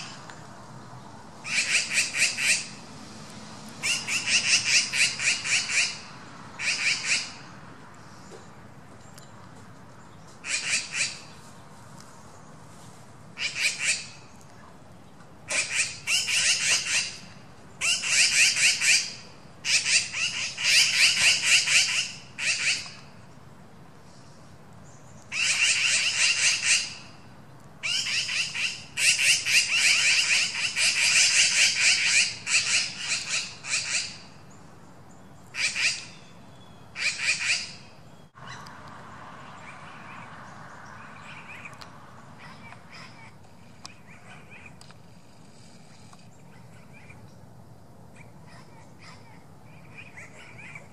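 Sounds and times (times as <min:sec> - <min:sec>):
birds chattering trills: 0:39.5 - 0:50.9.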